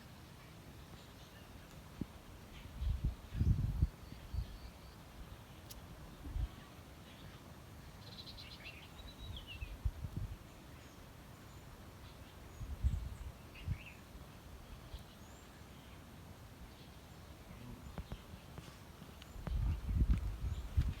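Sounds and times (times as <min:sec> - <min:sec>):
outdoor background noise: 0:00.0 - 0:21.0
dull low thumps: 0:19.4 - 0:21.0.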